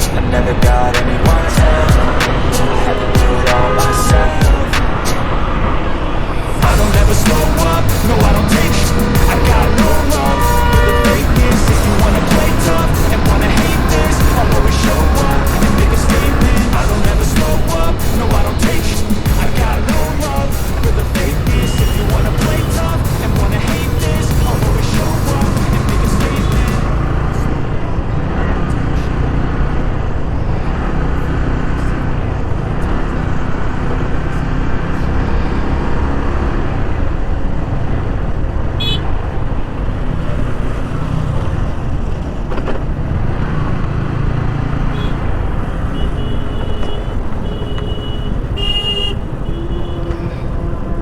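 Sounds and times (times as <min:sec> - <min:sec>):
wind rumble: 0:00.0 - 0:28.1
vehicle horns beeping: 0:00.8 - 0:05.3, 0:06.7 - 0:24.9, 0:38.8 - 0:39.2, 0:44.8 - 0:51.0
motorcycle engine: 0:06.6 - 0:51.0.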